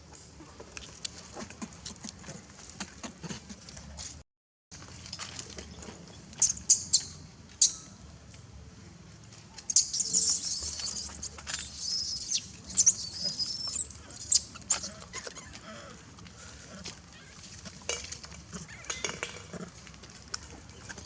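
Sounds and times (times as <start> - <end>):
baby monkey squealing: 9.7 - 15.3.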